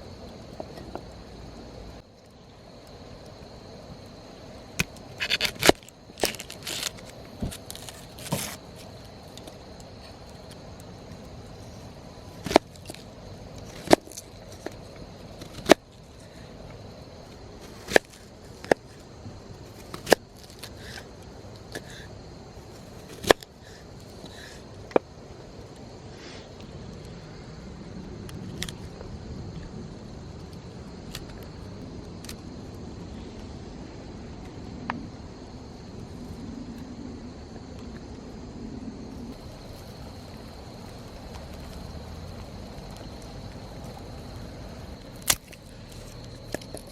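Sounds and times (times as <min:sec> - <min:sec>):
campfire crackling and popping: 0:00.0 - 0:22.0, 0:39.3 - 0:46.9.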